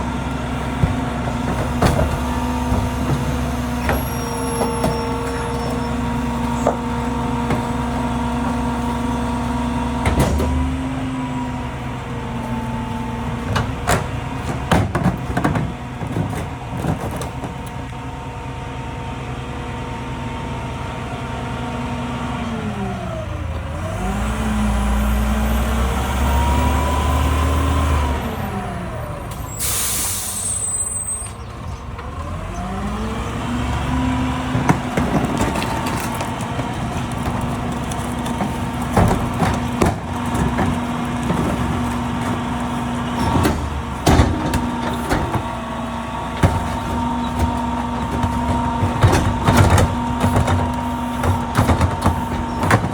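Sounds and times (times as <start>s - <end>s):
garbage truck diesel engine: 0.0s - 52.9s
air brakes hiss: 29.5s - 31.4s
bangs and clatters: 34.3s - 52.9s.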